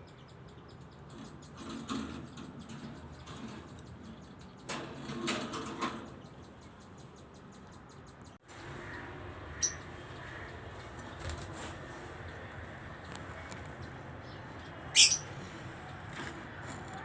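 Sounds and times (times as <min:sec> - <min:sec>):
budgerigars chirping: 0:09.6 - 0:10.5, 0:13.8 - 0:15.3.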